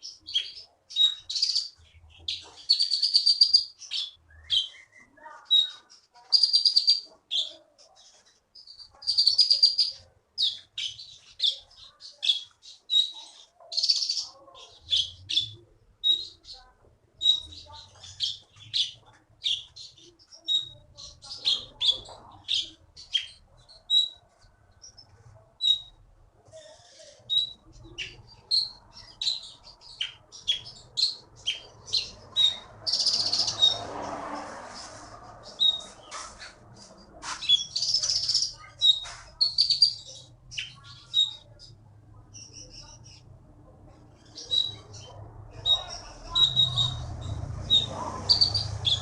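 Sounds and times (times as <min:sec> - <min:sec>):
songbird chirping: 0:00.0 - 0:49.0.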